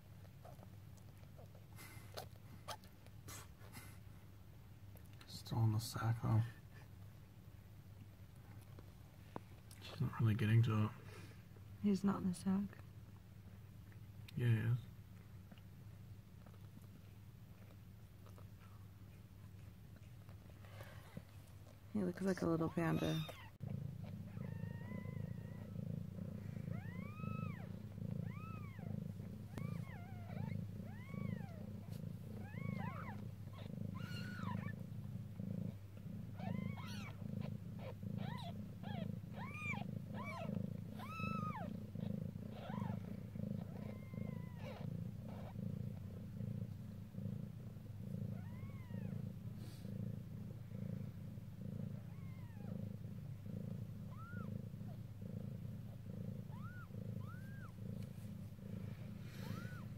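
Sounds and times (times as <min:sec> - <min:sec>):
cat purring: 0:00.0 - 0:59.9
kittens squeaking: 0:22.2 - 0:23.7, 0:24.3 - 0:35.7, 0:36.3 - 0:45.7, 0:48.3 - 0:49.2, 0:52.0 - 0:52.8, 0:53.6 - 0:55.0, 0:56.3 - 0:57.8, 0:59.3 - 0:59.9.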